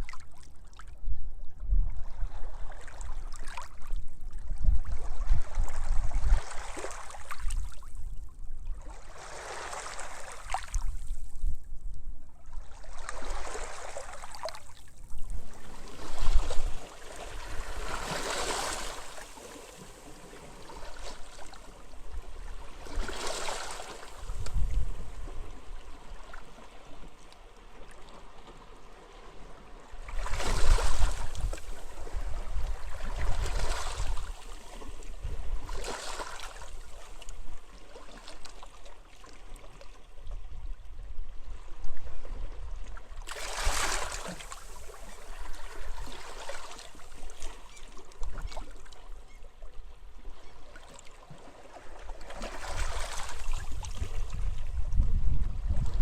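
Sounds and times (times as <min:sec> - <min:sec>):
wind rumble on microphone: 0:00.0 - 0:09.4, 0:10.0 - 0:13.9, 0:14.6 - 0:19.1, 0:20.5 - 0:27.2, 0:29.7 - 0:35.9, 0:52.6 - 0:56.0
small waves breaking on beach: 0:08.8 - 0:11.2, 0:12.7 - 0:39.7, 0:43.2 - 0:48.8, 0:50.2 - 0:54.7.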